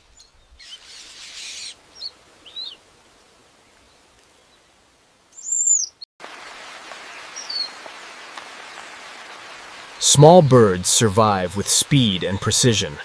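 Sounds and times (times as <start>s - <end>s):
forest ambience hiss: 0.0s - 13.0s
bird chirps: 0.1s - 2.8s, 5.3s - 6.1s, 7.3s - 7.8s.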